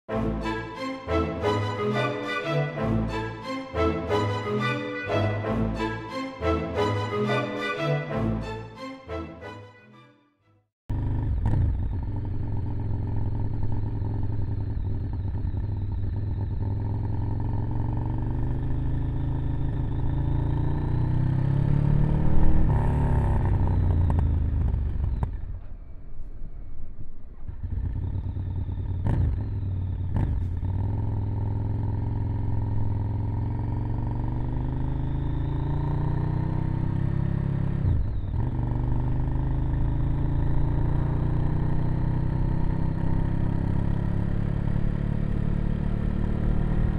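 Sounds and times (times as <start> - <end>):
motorcycle engine running: 10.9 - 46.9.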